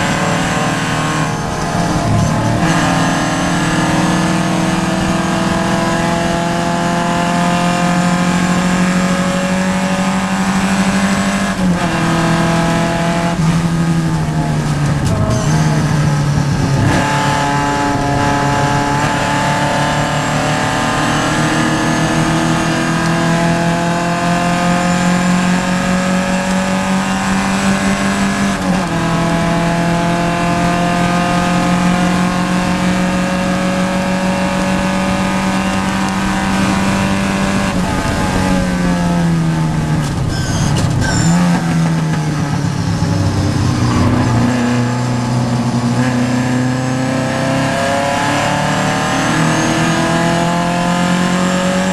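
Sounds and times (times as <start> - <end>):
race car engine revving: 0.0 - 51.9.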